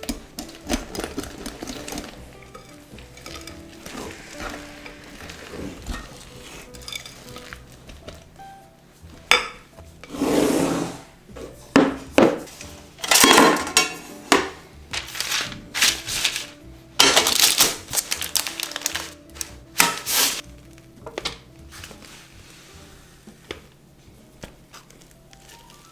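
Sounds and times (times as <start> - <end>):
stirring and scraping batter: 0.0 - 11.7, 17.8 - 25.9
soft background music: 0.0 - 25.9.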